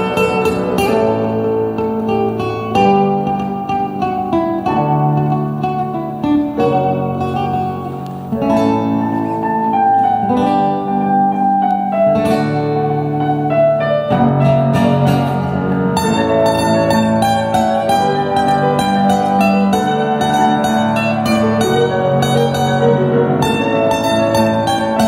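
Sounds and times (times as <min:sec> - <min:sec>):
plucked string instrument melody: 0:00.0 - 0:25.0.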